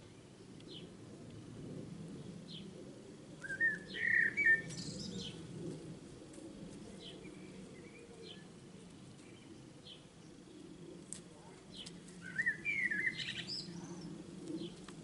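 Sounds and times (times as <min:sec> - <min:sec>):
bird warbling call: 0:03.4 - 0:05.3
small birds chirping: 0:03.4 - 0:05.4, 0:11.7 - 0:14.9.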